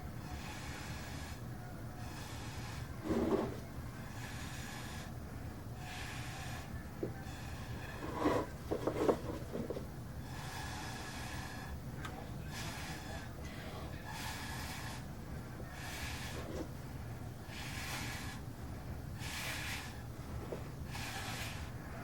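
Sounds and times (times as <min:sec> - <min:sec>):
airy puffs through a straw: 0:00.2 - 0:01.4, 0:02.0 - 0:05.1, 0:05.8 - 0:11.8, 0:12.4 - 0:15.1, 0:15.7 - 0:16.7, 0:17.4 - 0:18.5, 0:19.2 - 0:21.8.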